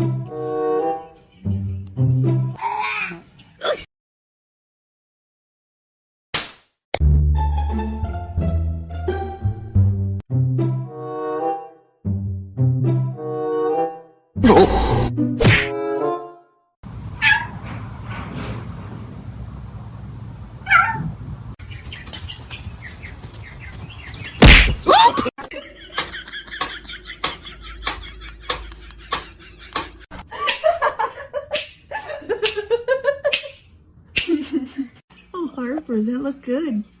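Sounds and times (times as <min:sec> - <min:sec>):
cat meowing: 0:17.2 - 0:17.5, 0:20.6 - 0:21.1
sharp evenly spaced taps: 0:26.0 - 0:30.0.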